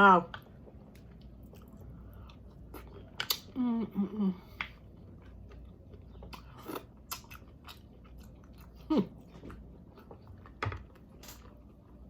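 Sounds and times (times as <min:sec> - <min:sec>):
chewing and biting food: 0:04.6 - 0:12.0.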